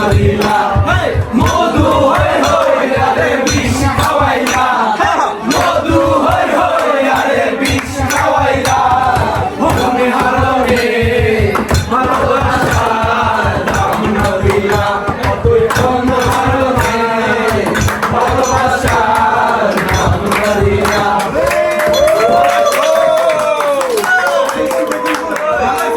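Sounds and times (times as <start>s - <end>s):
fast drum beat: 0.0s - 23.5s
voices singing: 0.0s - 25.9s.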